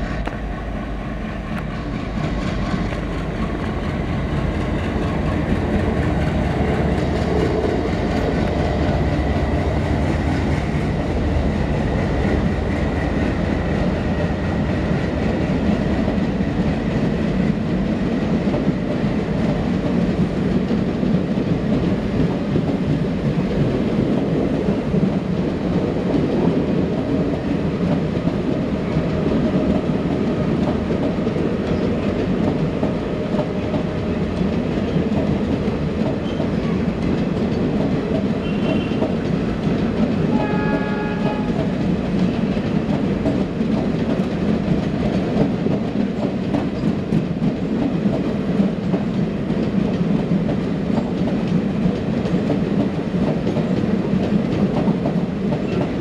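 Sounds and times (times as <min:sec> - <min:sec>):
train coaches rumbling past: 0:00.0 - 0:56.0
wheels clicking over rail joints: 0:01.5 - 0:56.0
horn-like tone: 0:40.3 - 0:41.6.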